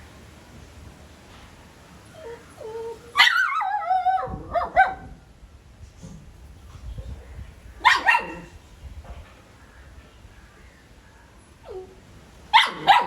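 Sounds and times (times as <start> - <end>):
puppy barking: 4.5 - 5.1, 7.8 - 8.5, 12.5 - 13.0
puppy yelping: 7.8 - 8.5, 12.6 - 13.0.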